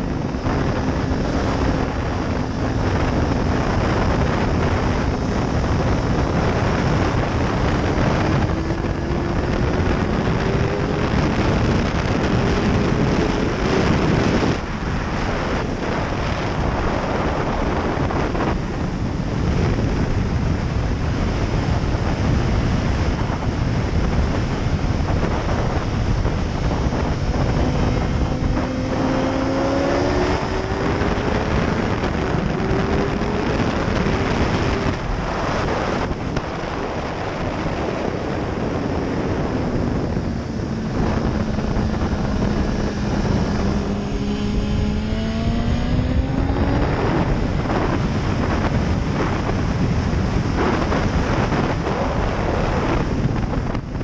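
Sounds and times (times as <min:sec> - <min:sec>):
motorcycle engine accelerating: 0:00.0 - 0:54.0
wind rush on microphone: 0:00.0 - 0:54.0.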